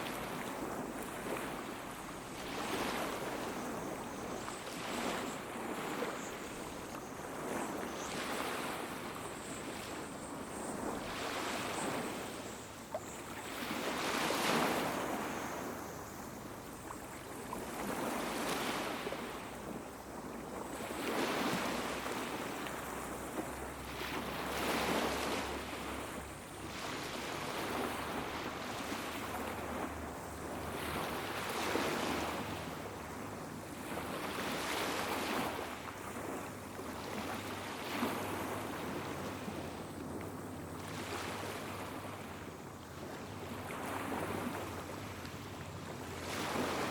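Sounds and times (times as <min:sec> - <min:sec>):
small waves washing onto beach: 0:00.0 - 0:46.9.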